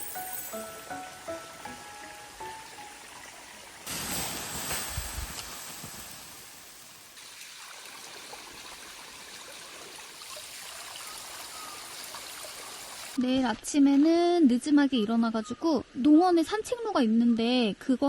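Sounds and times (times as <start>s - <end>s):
running water rushing: 0.4s - 13.2s.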